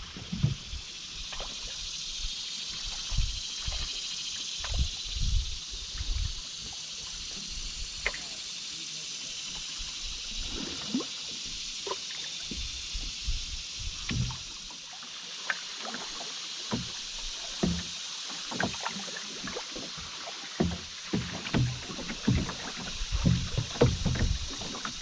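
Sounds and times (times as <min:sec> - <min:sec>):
paddle knocks and splashes: 0:00.0 - 0:01.7, 0:02.8 - 0:04.0, 0:04.6 - 0:05.4, 0:13.8 - 0:14.7, 0:15.4 - 0:25.0
steady high hiss: 0:00.0 - 0:20.4.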